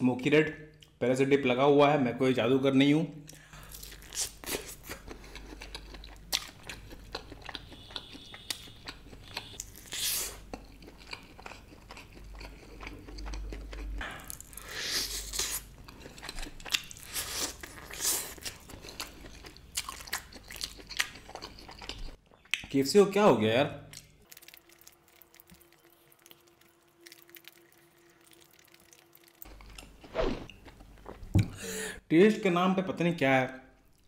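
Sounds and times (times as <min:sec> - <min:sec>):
man chewing chicken: 0:03.3 - 0:22.6, 0:23.9 - 0:31.2.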